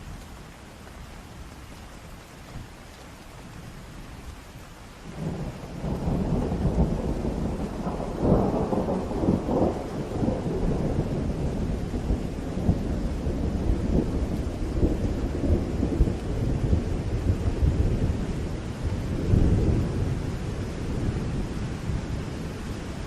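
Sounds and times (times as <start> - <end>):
steady rain: 0.0 - 23.0
thunder rumbling: 5.1 - 23.0.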